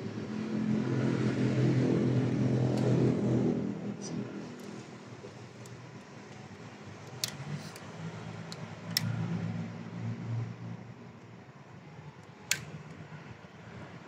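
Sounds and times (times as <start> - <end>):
sharp metallic clicks: 12.3 - 13.0.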